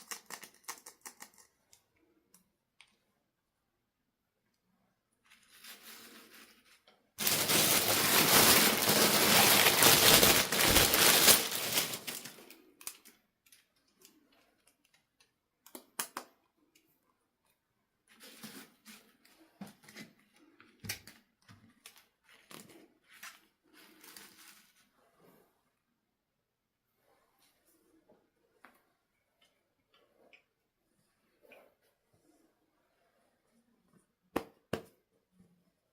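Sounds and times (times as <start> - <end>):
packaging rustling: 7.2 - 13.0.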